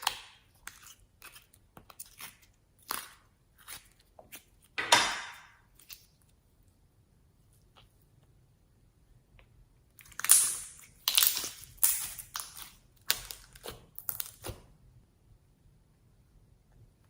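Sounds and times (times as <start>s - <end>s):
crunching and crackling by hand: 0.0s - 4.8s, 9.9s - 14.7s.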